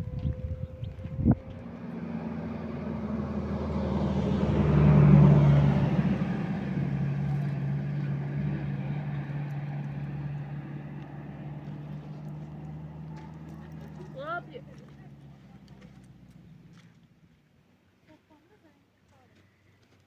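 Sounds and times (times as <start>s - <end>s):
vehicle engine humming: 0.0s - 18.6s.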